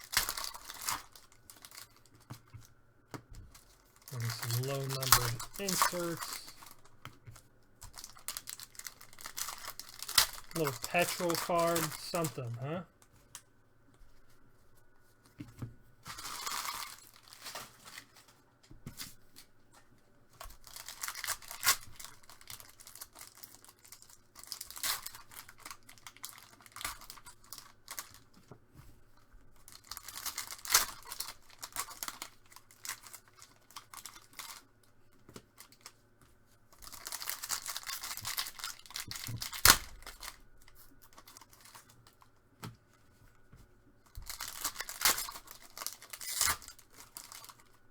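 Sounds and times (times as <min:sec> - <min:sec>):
card wrappers ripping: 0:00.0 - 0:02.2, 0:03.6 - 0:06.9, 0:07.9 - 0:12.8, 0:20.6 - 0:28.2, 0:29.7 - 0:34.6, 0:36.8 - 0:40.4, 0:44.2 - 0:47.7
foil cracking: 0:00.0 - 0:02.5, 0:03.5 - 0:06.9, 0:07.8 - 0:12.6, 0:20.5 - 0:28.4, 0:29.6 - 0:34.6, 0:44.1 - 0:47.8.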